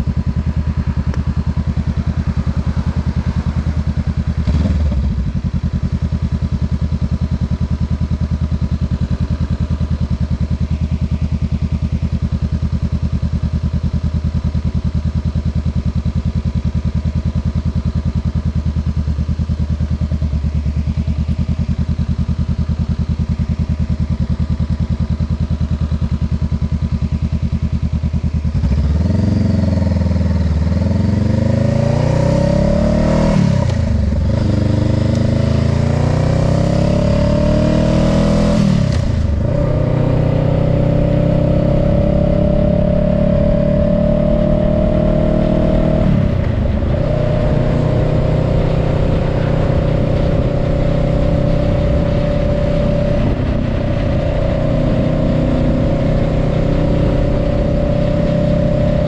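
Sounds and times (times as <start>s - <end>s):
motorcycle engine idling and revving: 0.0s - 59.0s.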